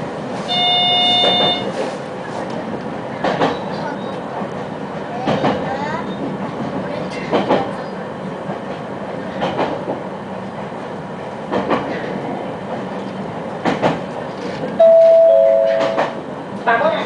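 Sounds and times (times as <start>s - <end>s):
train rumble and hum: 0.0s - 17.0s
wheels clacking over rail joints: 2.5s - 7.9s, 11.5s - 16.7s.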